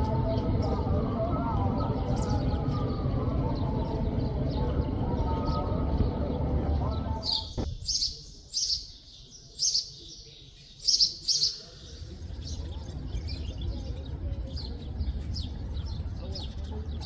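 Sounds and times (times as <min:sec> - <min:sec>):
low background rumble: 0:00.0 - 0:09.0
small bird chirping: 0:07.3 - 0:14.0.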